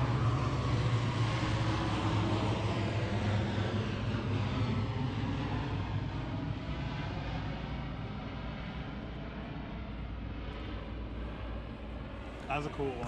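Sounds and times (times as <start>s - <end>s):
turboprop plane droning overhead: 0.0s - 13.0s.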